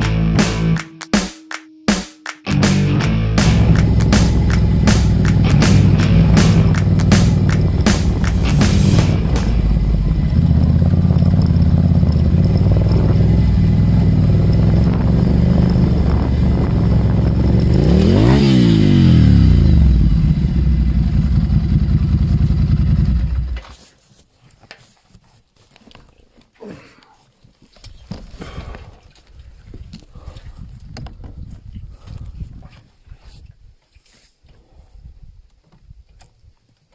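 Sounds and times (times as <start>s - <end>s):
engine running: 2.5s - 18.0s.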